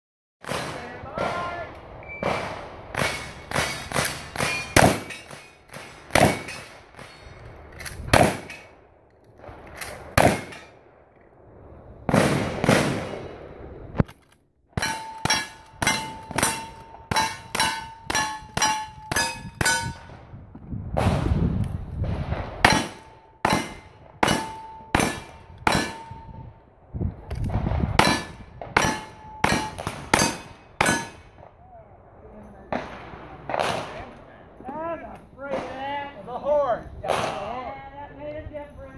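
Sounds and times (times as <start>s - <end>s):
metallic clanging strikes: 14.8s - 20.1s, 22.7s - 26.4s, 28.0s - 31.3s.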